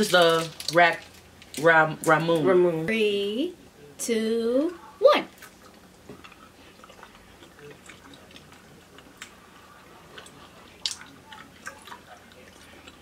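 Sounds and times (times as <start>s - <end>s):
people chewing candies: 5.4s - 13.0s.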